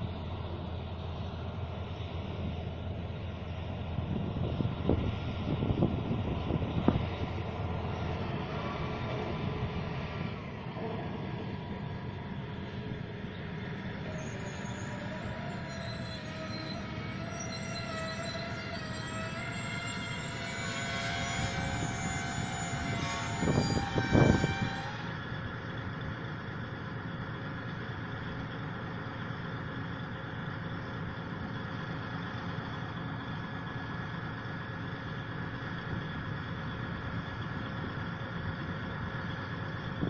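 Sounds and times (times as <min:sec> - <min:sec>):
diesel locomotive idling: 0:00.0 - 0:40.0
train wheels squealing: 0:13.8 - 0:25.4.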